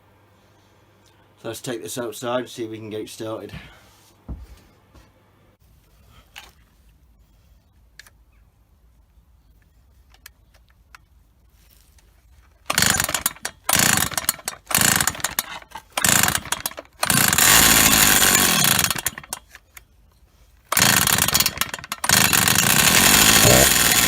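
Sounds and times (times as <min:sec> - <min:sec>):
recoil starter pulls: 0:12.5 - 0:19.7, 0:20.6 - 0:24.0
chainsaw engine catching and dying: 0:12.6 - 0:19.6, 0:20.7 - 0:24.0.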